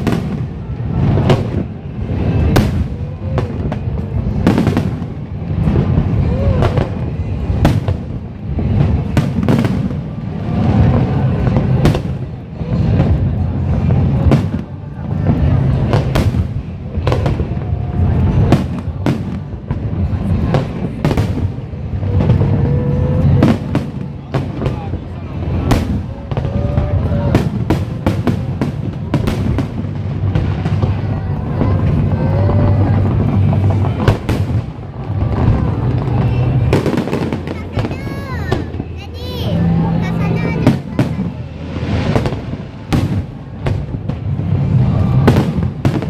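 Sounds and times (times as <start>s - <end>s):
fireworks bangs: 0.0s - 46.0s
low rumble: 25.0s - 46.0s.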